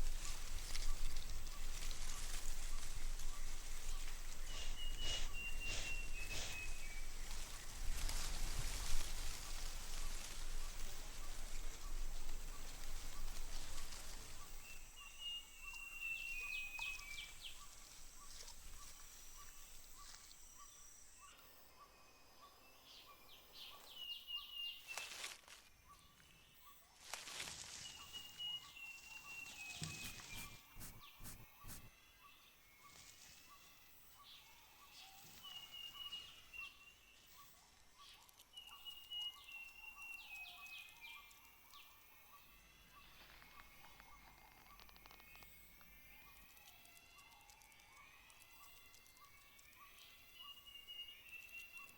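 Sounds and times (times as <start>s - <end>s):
faint insect pulse: 0.0s - 22.4s, 26.9s - 32.3s
bird whistled call: 4.5s - 7.1s, 28.4s - 31.9s.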